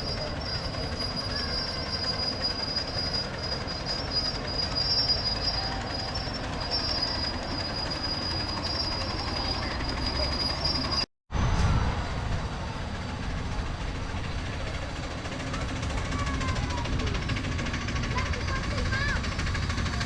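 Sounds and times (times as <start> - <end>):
high wheel squeal: 0.0 - 11.1, 12.9 - 20.0
wheels rumbling on rail: 0.0 - 20.0.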